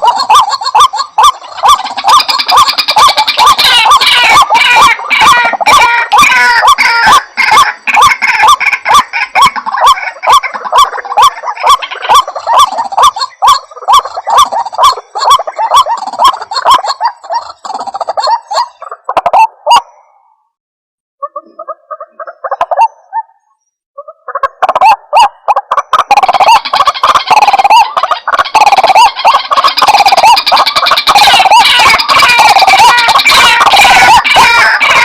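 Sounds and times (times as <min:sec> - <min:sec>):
waterhen calling: 0:00.0 - 0:20.1, 0:21.2 - 0:35.0
overlapping higher bird notes: 0:26.2 - 0:35.0.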